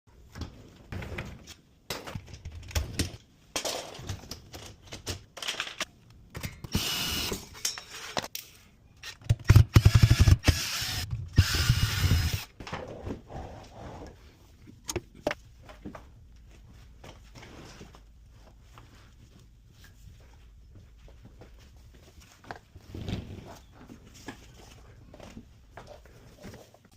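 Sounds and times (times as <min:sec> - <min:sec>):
clicks and knocks of tools: 0:01.9 - 0:09.4
power driver running: 0:09.8 - 0:12.5.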